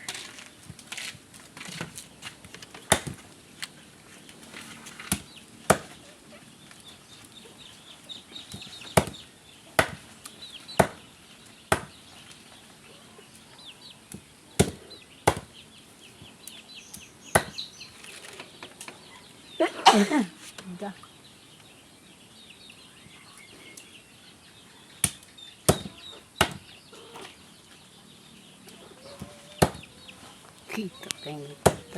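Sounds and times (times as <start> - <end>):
cleaver chopping meat: 5.1 - 5.9, 9.8 - 10.0, 10.8 - 11.0, 11.7 - 12.0, 14.6 - 15.5, 17.4 - 17.6, 25.0 - 26.6, 29.6 - 29.8, 31.6 - 31.9
chickens cheeping: 21.0 - 31.9.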